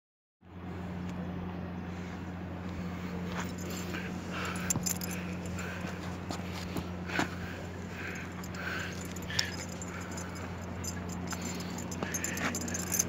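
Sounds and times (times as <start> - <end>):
low hum: 0.4 - 13.0
metallic jingling: 3.4 - 6.0, 7.7 - 13.0.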